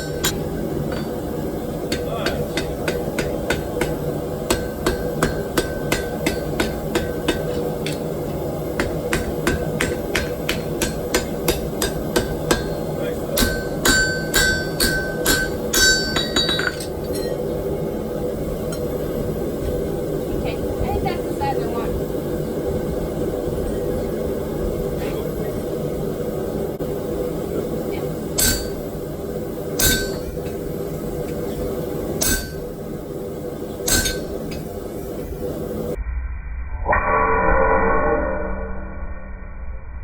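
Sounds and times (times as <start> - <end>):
hammer striking steel on anvil: 0.0 - 1.2, 1.9 - 17.4, 28.4 - 29.0, 29.8 - 30.6, 32.2 - 32.8, 33.8 - 34.7
anvil ringing: 8.8 - 17.4, 28.4 - 28.9, 29.8 - 30.4, 32.2 - 32.8, 33.8 - 34.6.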